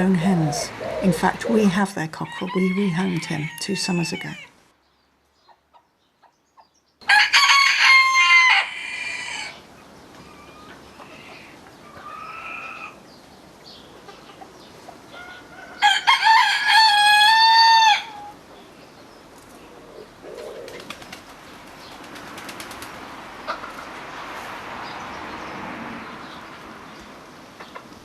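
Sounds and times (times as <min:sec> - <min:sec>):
rooster crowing: 0:07.0 - 0:09.6, 0:15.2 - 0:18.3.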